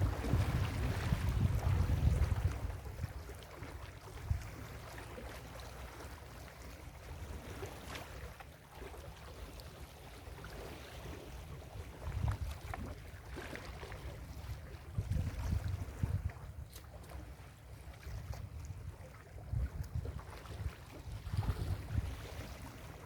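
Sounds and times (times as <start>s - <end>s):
wind buffeting microphone: 0.0s - 3.4s, 4.0s - 4.6s, 11.6s - 12.9s, 14.3s - 16.8s, 18.0s - 22.9s.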